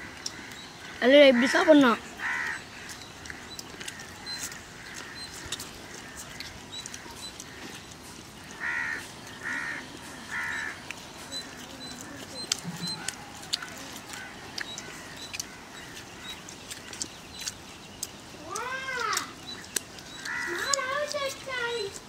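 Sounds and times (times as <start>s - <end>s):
bird calling: 0.0s - 22.0s.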